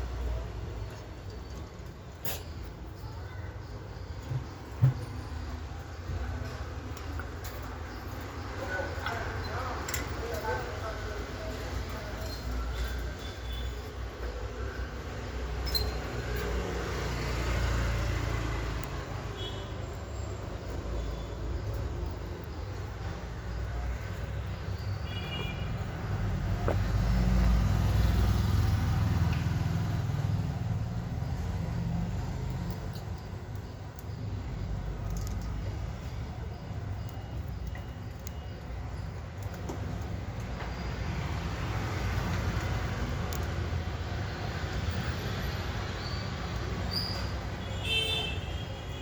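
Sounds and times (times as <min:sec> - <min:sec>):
passing road vehicle rumble: 0:25.8 - 0:33.0.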